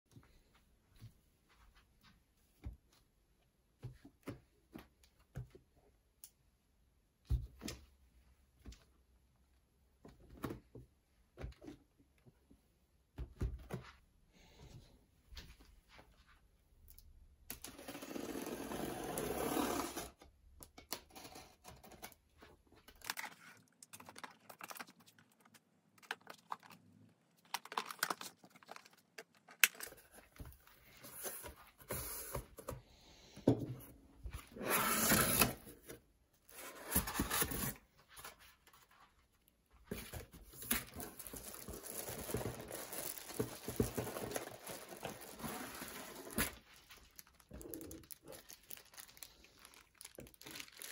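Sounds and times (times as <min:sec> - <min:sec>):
packaging rustling and tearing: 0:27.4 - 0:30.3, 0:40.4 - 0:50.9.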